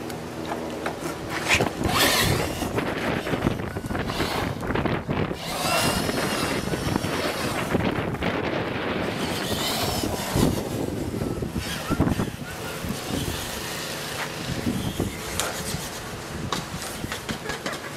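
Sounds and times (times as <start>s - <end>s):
wind noise on microphone: 1.2s - 17.9s
toy car motor whining: 1.3s - 8.3s, 9.0s - 16.2s.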